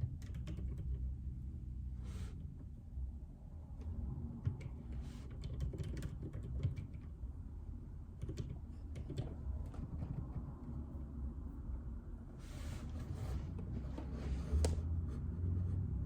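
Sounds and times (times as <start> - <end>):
mechanical keyboard typing: 0.0 - 1.0, 4.4 - 7.0
low steady hum: 0.0 - 16.0.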